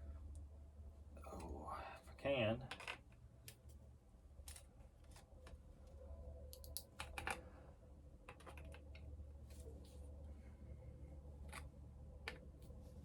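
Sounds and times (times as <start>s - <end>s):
faint low hum: 0.0s - 13.0s
small parts and tools clicking: 4.4s - 5.6s, 6.5s - 7.4s.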